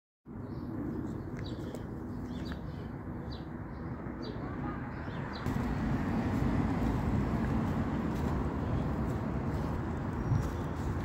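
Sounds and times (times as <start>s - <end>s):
low outdoor rumble: 5.4s - 11.0s.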